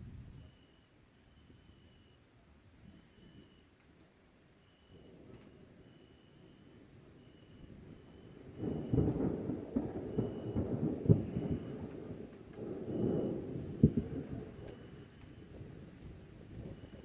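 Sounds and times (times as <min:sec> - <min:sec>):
thunder rumbling and cracking: 0:07.7 - 0:17.0.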